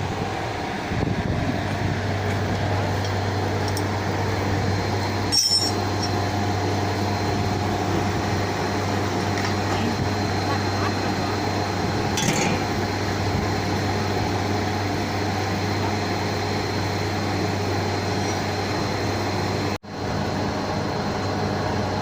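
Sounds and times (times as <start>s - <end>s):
machinery hum with high whine: 0.0s - 22.0s
sharp metallic clink: 5.3s - 6.2s.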